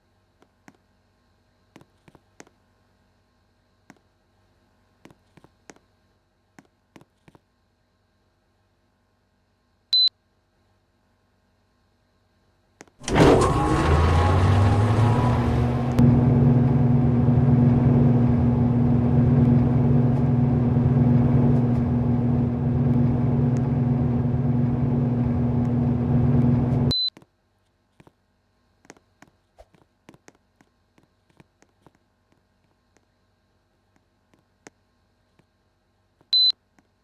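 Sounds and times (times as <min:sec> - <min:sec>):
electric motor humming: 0:13.0 - 0:26.9.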